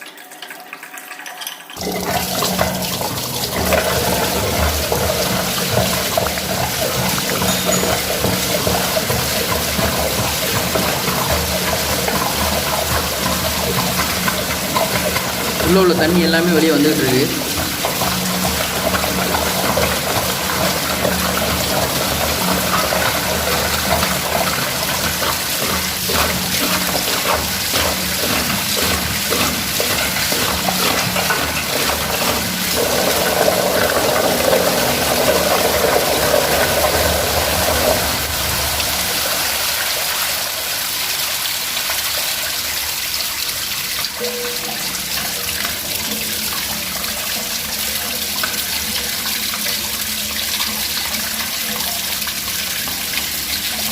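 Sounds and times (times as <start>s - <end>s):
water pouring from tank: 0.0s - 53.9s.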